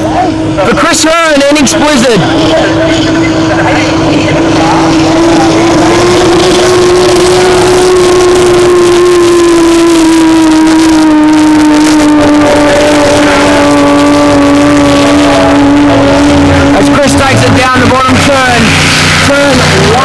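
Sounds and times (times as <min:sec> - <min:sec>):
powerboat engine droning: 0:00.0 - 0:20.0.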